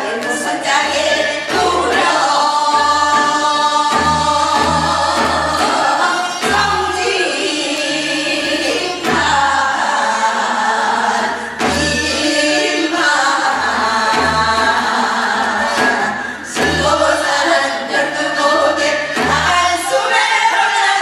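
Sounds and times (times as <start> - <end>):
voices singing folk song in unison: 0.0 - 21.0.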